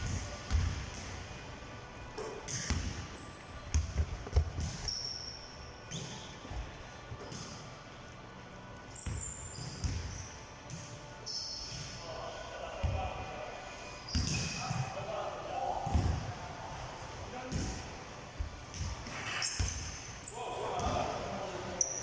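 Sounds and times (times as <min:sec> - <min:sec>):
basketballs bouncing on gym floor: 0:00.0 - 0:01.1, 0:03.7 - 0:05.0, 0:09.0 - 0:10.8, 0:15.9 - 0:16.2
sneaker squeaks: 0:02.2 - 0:06.6, 0:08.9 - 0:12.0, 0:14.0 - 0:14.8, 0:19.1 - 0:20.4, 0:21.8 - 0:22.0.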